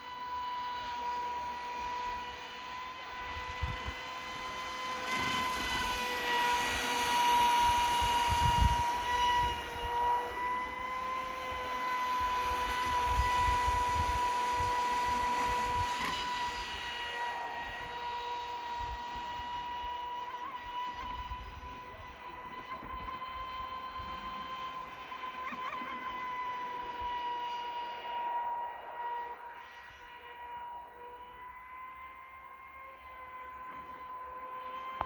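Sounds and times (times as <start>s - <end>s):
model boat motor whining: 0.0s - 35.0s
wind on microphone: 5.1s - 17.0s.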